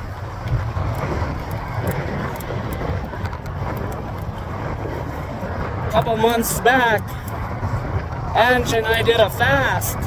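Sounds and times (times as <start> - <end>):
road traffic noise: 0.0 - 10.0
wind rumble on microphone: 0.0 - 10.0.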